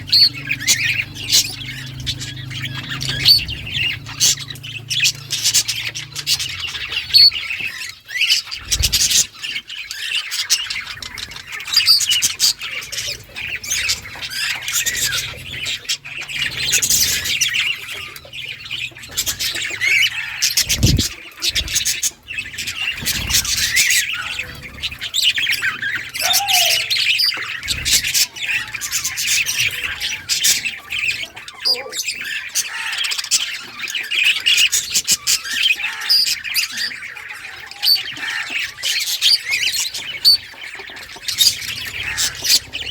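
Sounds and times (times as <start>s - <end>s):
budgerigars chattering: 0.0s - 42.9s.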